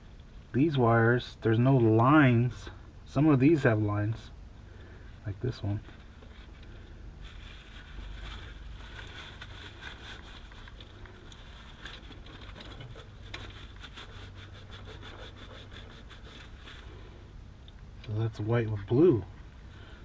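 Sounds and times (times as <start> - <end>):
low steady hum: 0.0 - 20.0
wiring rustling and scraping: 5.6 - 17.4
small scrapes and ticks: 5.6 - 19.6.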